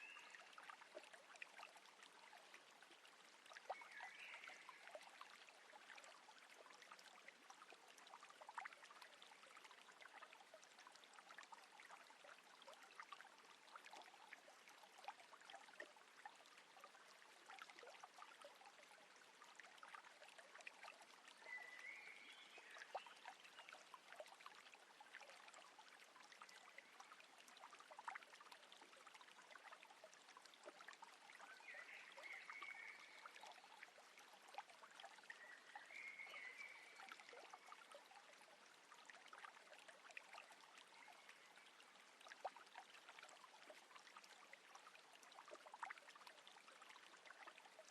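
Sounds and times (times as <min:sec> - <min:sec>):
faint bird chirps: 0:03.7 - 0:05.0, 0:21.4 - 0:23.8, 0:31.5 - 0:33.7, 0:35.3 - 0:37.7.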